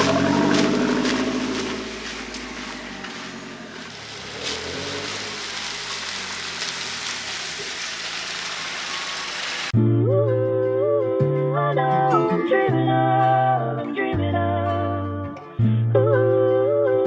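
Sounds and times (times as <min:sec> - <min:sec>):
car engine running: 0:00.0 - 0:09.8
steady broad hiss: 0:03.4 - 0:09.7
music: 0:09.8 - 0:17.0.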